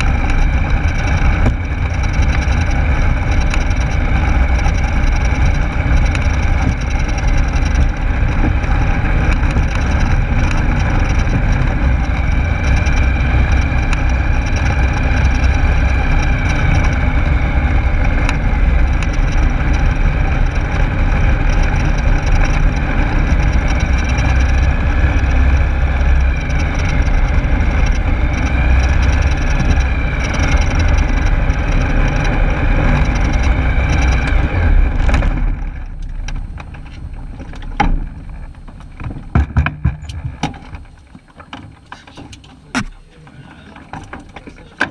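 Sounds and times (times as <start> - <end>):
aircraft engine and propeller: 0.0 - 44.9
faint wavering whine: 0.0 - 44.9.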